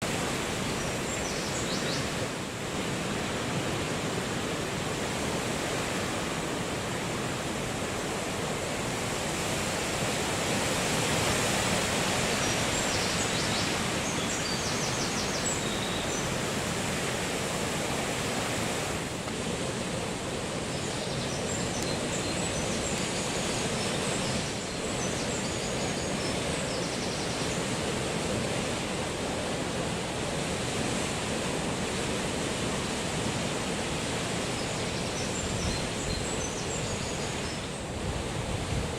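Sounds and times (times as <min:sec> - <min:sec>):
sea rushing: 0:00.0 - 0:38.9
strong wind: 0:00.0 - 0:38.9.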